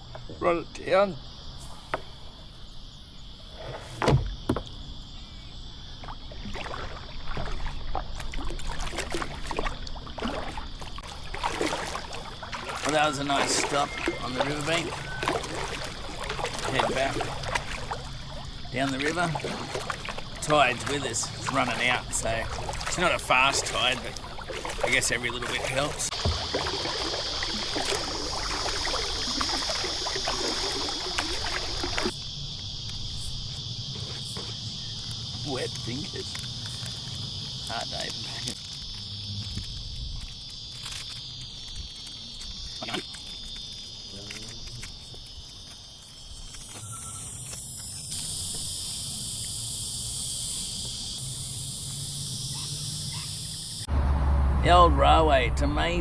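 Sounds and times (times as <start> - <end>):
high insect drone: 0.0 - 56.0
water sloshing: 1.2 - 53.7
paddle splashes: 3.5 - 4.9, 5.9 - 32.2
knocks against kayak hull: 4.0 - 4.8
water dripping: 6.0 - 32.2.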